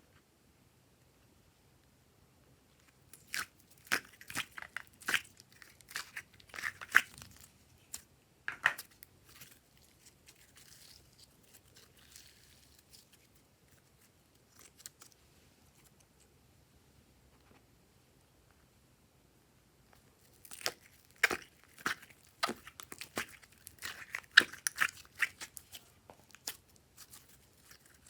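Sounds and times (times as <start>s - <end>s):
sticky slime clicks and crackles: 3.1s - 8.0s, 20.3s - 28.0s
soft rustle: 8.8s - 16.3s, 19.9s - 28.0s.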